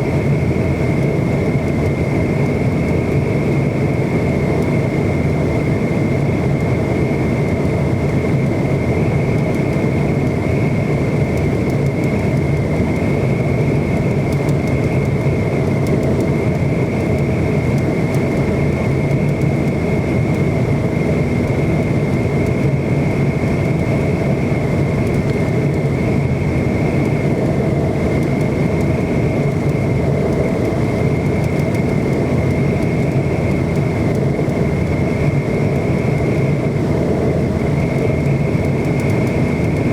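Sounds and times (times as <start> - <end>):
airliner cabin rumble: 0.0 - 39.9
high engine whine: 0.0 - 39.9.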